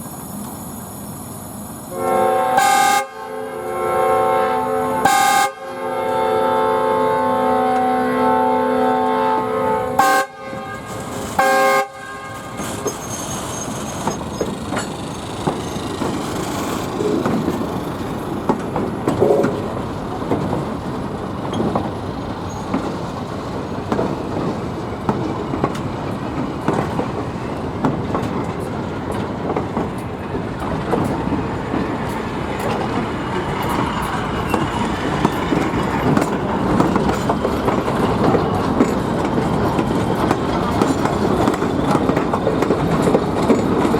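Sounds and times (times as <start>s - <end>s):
train rumbling: 0.0s - 43.9s
locomotive air horn blast: 1.9s - 13.0s
wheels clicking over rail joints: 10.6s - 43.9s.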